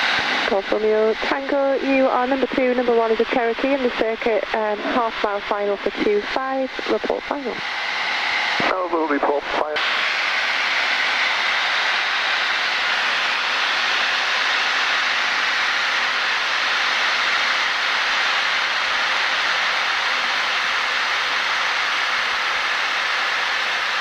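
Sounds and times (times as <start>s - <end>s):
light aircraft cockpit noise: 0.0s - 7.6s.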